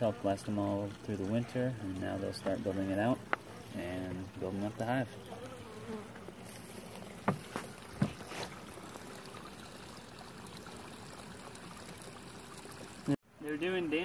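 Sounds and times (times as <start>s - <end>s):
bees buzzing: 0.0s - 10.2s.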